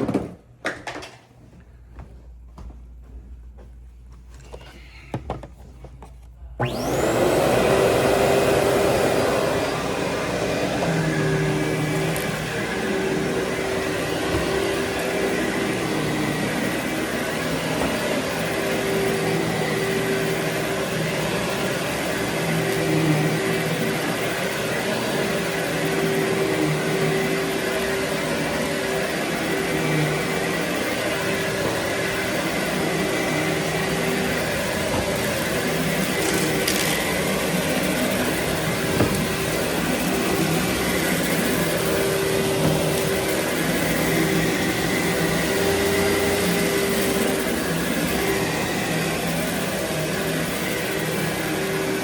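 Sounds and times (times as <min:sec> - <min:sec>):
vacuum cleaner running: 0:04.4 - 0:52.0.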